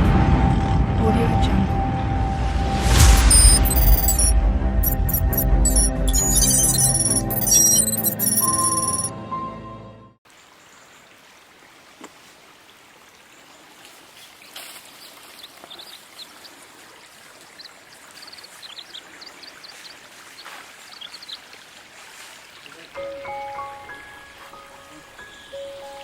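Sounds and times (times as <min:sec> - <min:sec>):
short high chirps: 0:03.0 - 0:09.1
water running over rocks: 0:10.3 - 0:26.0.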